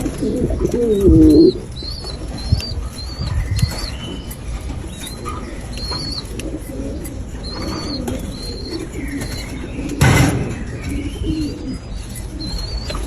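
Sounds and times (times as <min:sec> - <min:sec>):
steady low rumble: 0:00.0 - 0:09.0
birds chirping: 0:00.0 - 0:13.0.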